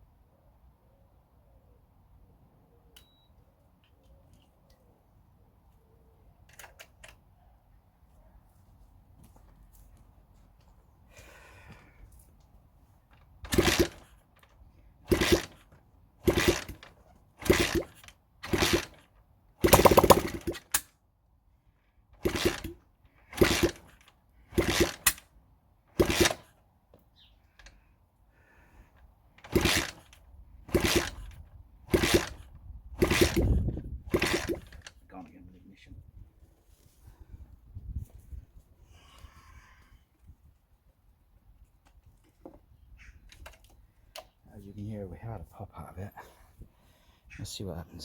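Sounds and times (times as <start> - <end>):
motorcycle engine turning over: 13.4 - 20.8, 22.1 - 25.3, 25.9 - 26.6, 29.4 - 34.9.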